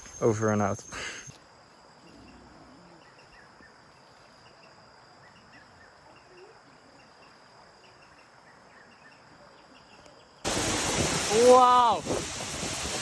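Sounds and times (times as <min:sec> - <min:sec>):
insects high drone: 0:00.0 - 0:09.8.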